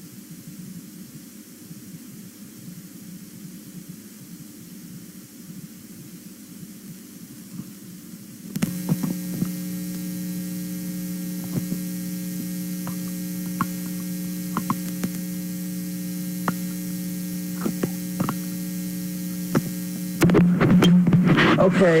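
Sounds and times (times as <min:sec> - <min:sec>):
buzzy electrical hum: 0:00.0 - 0:22.0.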